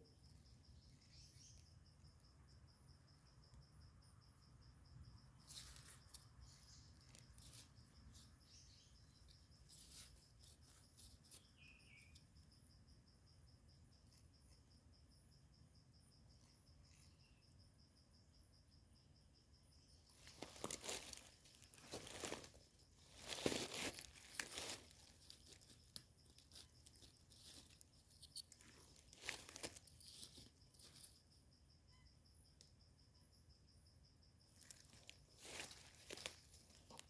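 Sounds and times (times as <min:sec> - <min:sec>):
pulsing insect trill: 0:00.0 - 0:37.0
rustling of dry ground litter: 0:05.4 - 0:12.2, 0:20.1 - 0:31.3, 0:34.5 - 0:37.0.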